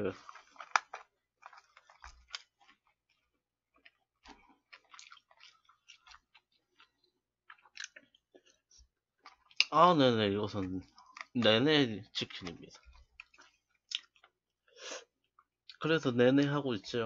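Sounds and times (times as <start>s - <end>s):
chewing fried chicken: 0.0s - 15.9s.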